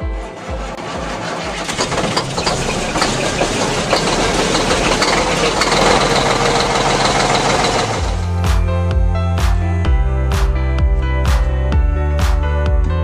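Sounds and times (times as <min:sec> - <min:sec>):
car engine running rattly: 0:00.0 - 0:08.4.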